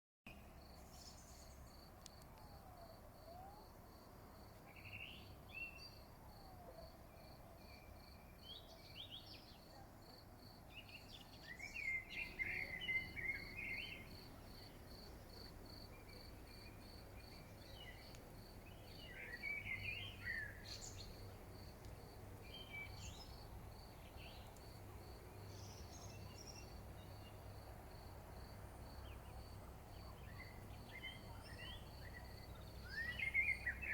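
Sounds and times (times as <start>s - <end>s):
birds singing and chirping: 18.7s - 21.3s, 30.0s - 33.9s.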